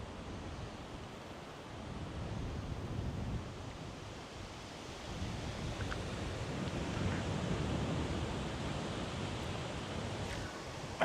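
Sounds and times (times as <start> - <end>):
wind buffeting microphone: 1.9 - 11.0
river rushing past rocks: 2.8 - 11.0.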